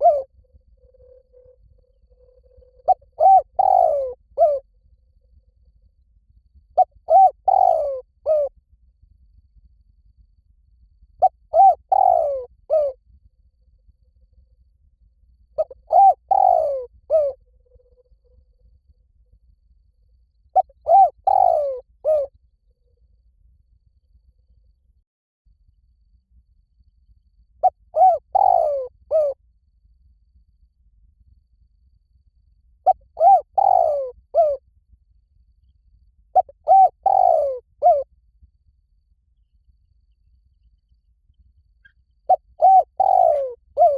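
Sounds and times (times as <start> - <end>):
dove cooing: 0.0 - 0.3, 2.2 - 4.6, 6.8 - 8.5, 11.2 - 13.0, 15.6 - 17.4, 20.6 - 22.3, 27.6 - 29.4, 32.9 - 34.6, 36.4 - 38.1, 42.3 - 43.9.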